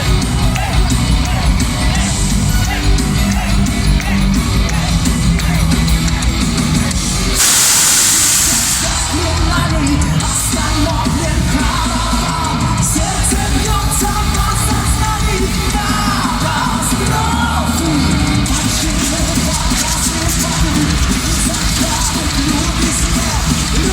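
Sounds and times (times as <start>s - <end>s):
heavy metal band playing: 0.0s - 23.9s
loud hissing wash: 7.4s - 9.4s.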